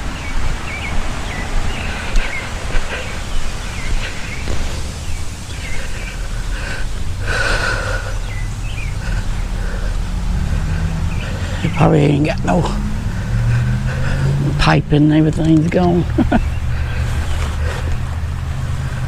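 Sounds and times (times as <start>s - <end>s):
low outdoor rumble: 0.0s - 19.0s
small birds chirping: 0.0s - 19.0s
loud harsh sound: 3.7s - 8.3s.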